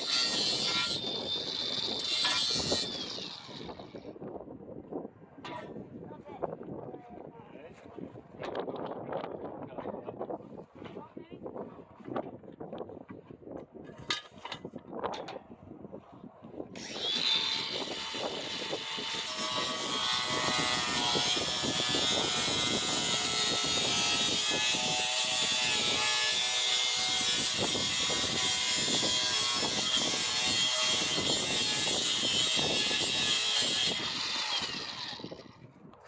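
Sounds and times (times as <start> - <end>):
power tool motor whine: 0.0 - 4.0, 16.8 - 35.5.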